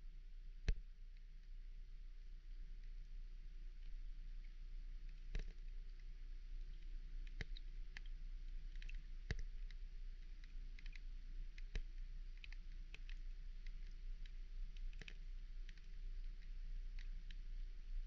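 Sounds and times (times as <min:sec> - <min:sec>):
faint wavering hum: 0:00.0 - 0:18.0
sharp underwater clicks: 0:00.5 - 0:18.0.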